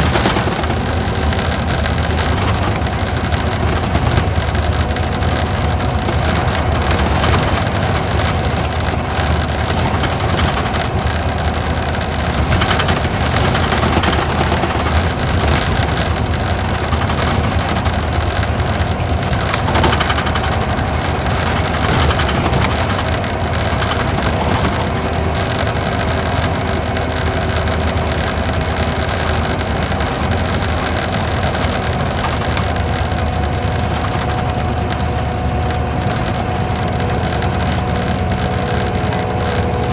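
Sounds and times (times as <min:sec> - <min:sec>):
diesel engine drone: 0:00.0 - 0:39.9
road and tyre noise: 0:00.0 - 0:39.9.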